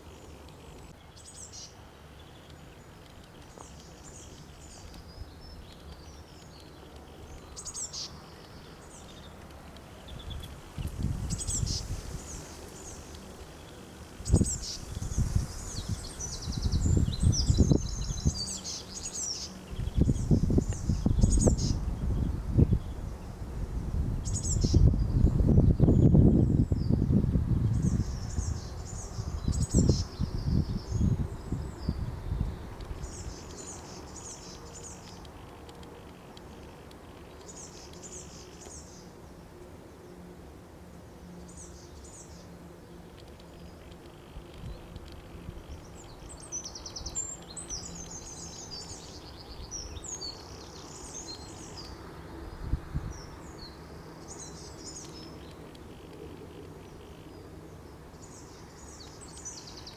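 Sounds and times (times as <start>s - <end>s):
low background noise: 0.0s - 59.9s
songbirds singing: 0.0s - 59.9s
small bird chirping: 10.0s - 13.0s, 13.6s - 23.0s
low rumble in gusts: 10.1s - 12.9s, 14.2s - 18.5s, 19.7s - 33.4s.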